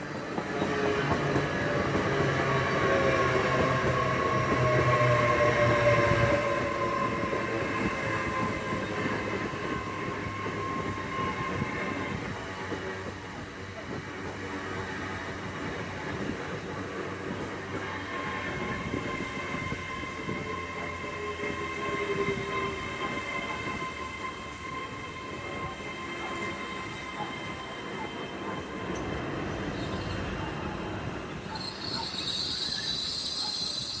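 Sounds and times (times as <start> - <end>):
train rumbling: 0.0 - 34.0
brakes squealing: 31.5 - 34.0.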